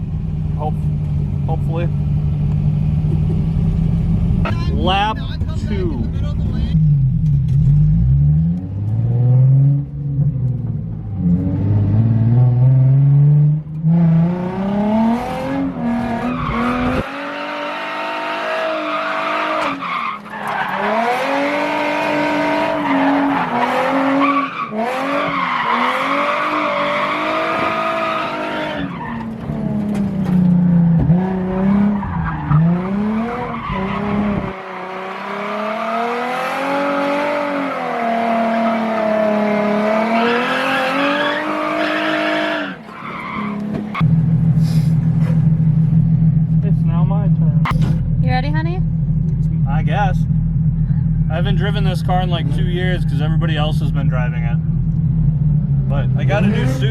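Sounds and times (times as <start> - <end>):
car engine revving: 0.0 - 56.9.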